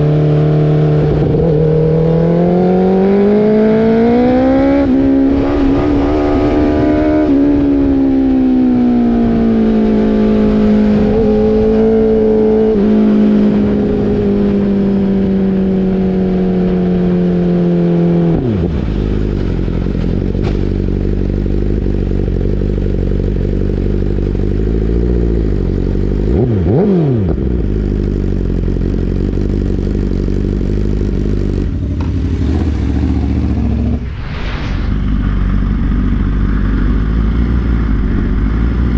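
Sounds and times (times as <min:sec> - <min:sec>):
motorcycle engine revving: 0:00.0 - 0:38.9
low rush: 0:32.3 - 0:38.9.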